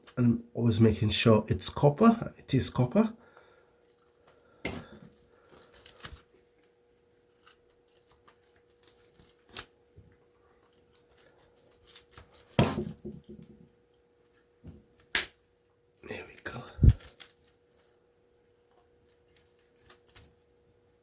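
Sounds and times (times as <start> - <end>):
faint steady hum: 0.0 - 21.0
insulation tearing scrapes: 10.7 - 12.6.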